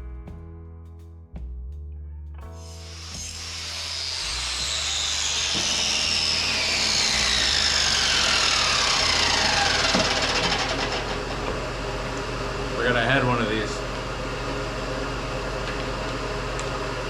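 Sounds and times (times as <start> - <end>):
angle grinder grinding steel: 2.6 - 11.6.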